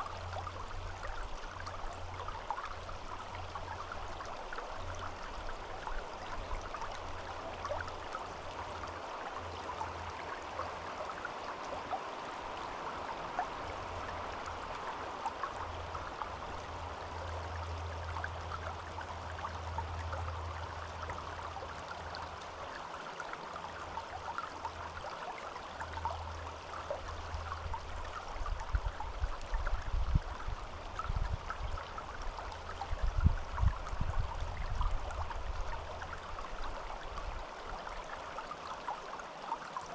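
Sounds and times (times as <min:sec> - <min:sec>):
stream babbling: 0:00.0 - 0:39.9
low uneven rumble: 0:12.3 - 0:22.8.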